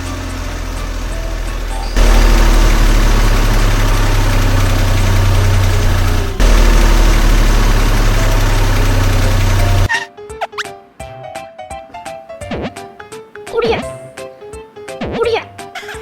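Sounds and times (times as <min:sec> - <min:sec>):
engine heavy low hum: 0:00.0 - 0:09.9.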